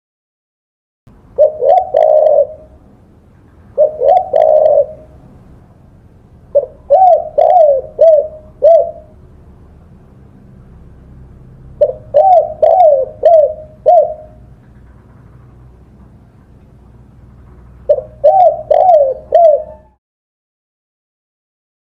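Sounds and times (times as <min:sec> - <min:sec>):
dove cooing: 0:01.4 - 0:02.8, 0:03.7 - 0:05.3, 0:06.5 - 0:09.2, 0:11.8 - 0:15.5, 0:17.6 - 0:20.0.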